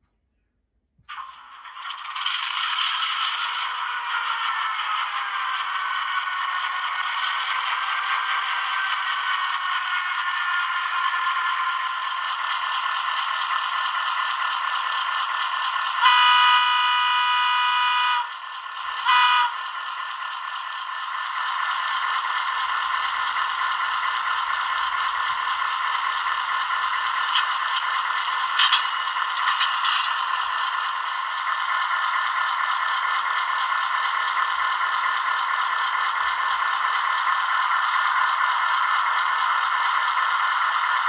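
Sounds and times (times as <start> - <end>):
diesel engine sound from small speaker: 1.1 - 41.0
model train rattling on track: 1.1 - 41.0
locomotive horn blasts: 16.0 - 18.3, 19.0 - 19.6.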